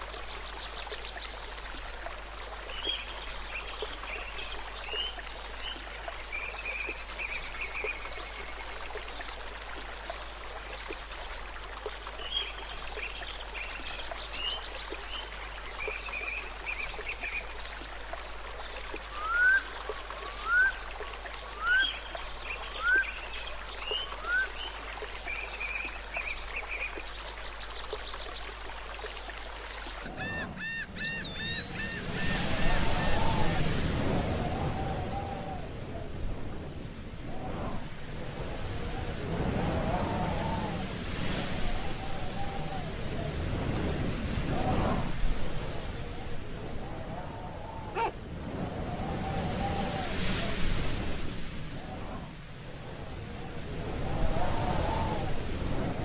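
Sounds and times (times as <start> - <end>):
stream rushing: 0.0 - 56.0
bird chirping song: 29.7 - 33.2
loud rising whistled bird calls: 30.1 - 33.7.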